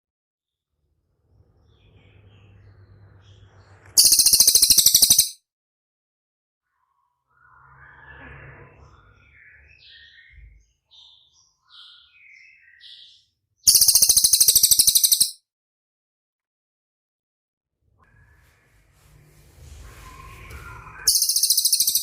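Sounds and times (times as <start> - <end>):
bird chirps and whistles: 4.0 - 5.4, 13.7 - 15.4, 19.8 - 22.0
fast buzzing bird trill: 4.0 - 5.4, 13.7 - 15.4, 21.1 - 22.0.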